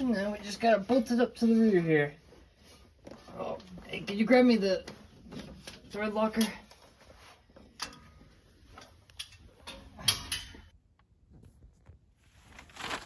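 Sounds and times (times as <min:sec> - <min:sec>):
tools clicking and knocking: 0:08.8 - 0:10.8.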